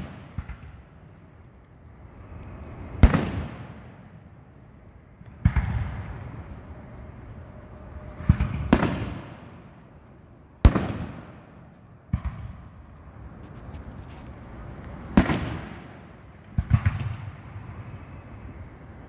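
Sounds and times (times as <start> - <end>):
firework shells booming: 10.7 - 12.7, 15.1 - 17.5.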